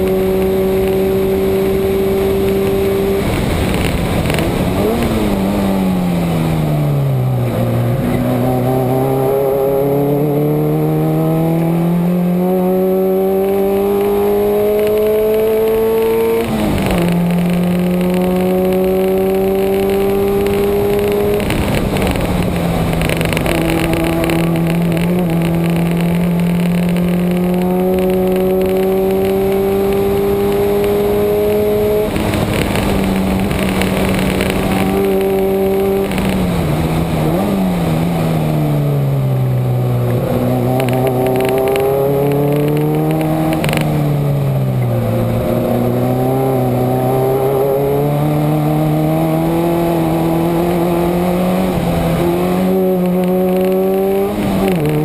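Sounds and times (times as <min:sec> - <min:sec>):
car engine under load: 0:00.0 - 0:55.0
wind and tyre rush: 0:00.0 - 0:55.0.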